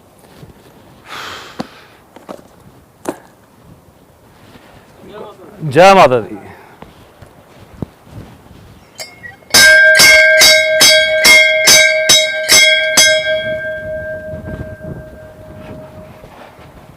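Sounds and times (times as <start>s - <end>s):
metal temple bell ringing: 8.9s - 16.4s.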